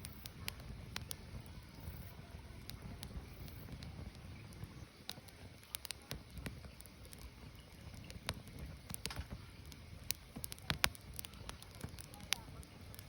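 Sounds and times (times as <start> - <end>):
firewood crackling and popping: 0.0 - 13.0.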